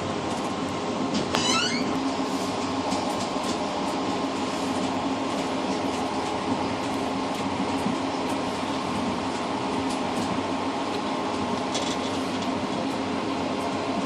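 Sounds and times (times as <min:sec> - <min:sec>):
train rumbling: 0:00.0 - 0:14.0
high squeaking: 0:01.4 - 0:02.0.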